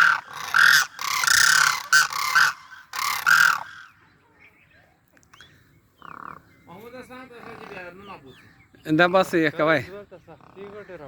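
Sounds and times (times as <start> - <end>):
cranes calling harshly: 0.0 - 4.0.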